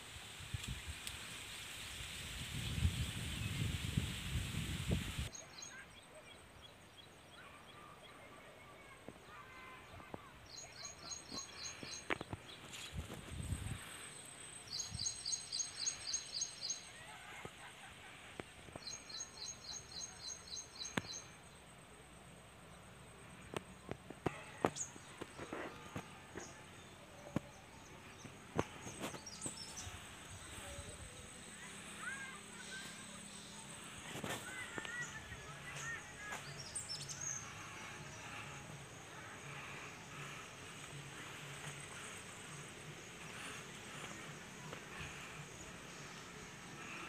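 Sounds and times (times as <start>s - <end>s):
faint outdoor hiss: 0.0s - 47.0s
birds chirping: 5.2s - 21.8s, 22.8s - 47.0s.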